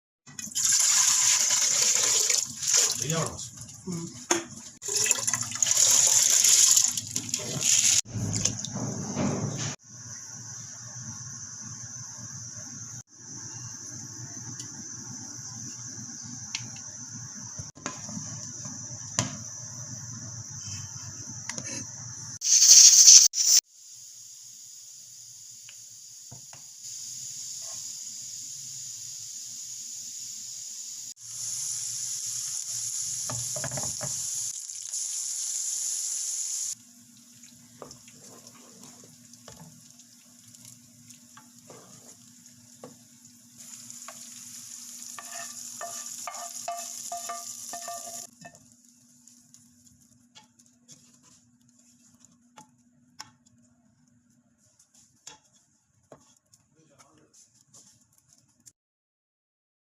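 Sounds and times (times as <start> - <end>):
food sizzling in a pan: 0.4 - 8.4, 9.7 - 51.2
stirring in a pan: 36.8 - 56.7.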